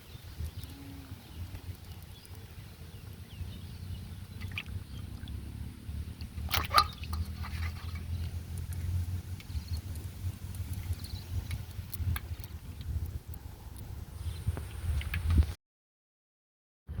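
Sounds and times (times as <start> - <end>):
water splashing and dripping: 0.0 - 13.9
steady low rumble: 0.0 - 15.4
sharp splash: 4.4 - 5.4, 6.1 - 9.2.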